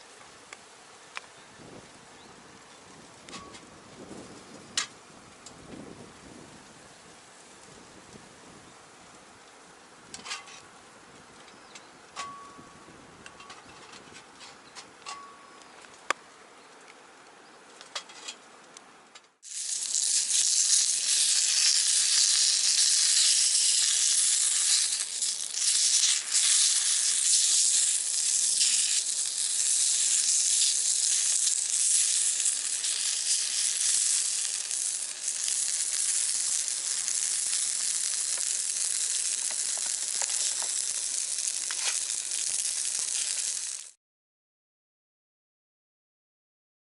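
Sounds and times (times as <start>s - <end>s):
loud steady hiss: 0.0s - 13.4s, 18.8s - 44.0s
faint ticks and crackles: 13.2s - 43.9s.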